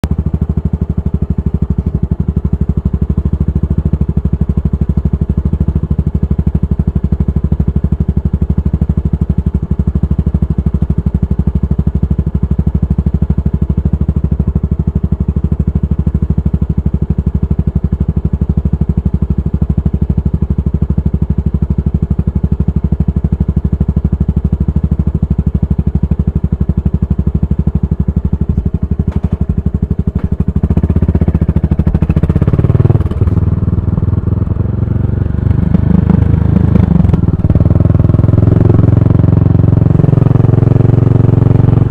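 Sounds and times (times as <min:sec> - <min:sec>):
single-cylinder engine running: 0:00.0 - 0:41.9.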